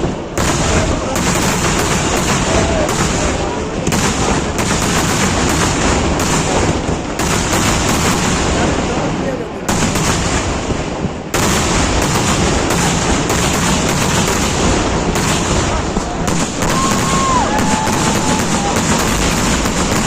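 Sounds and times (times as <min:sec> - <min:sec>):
fireworks crackling bangs: 0:00.0 - 0:20.0.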